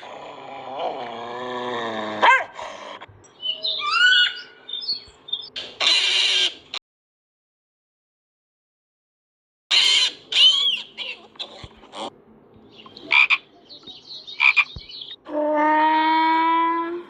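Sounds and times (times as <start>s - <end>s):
long steady animal call: 14.4s - 17.0s.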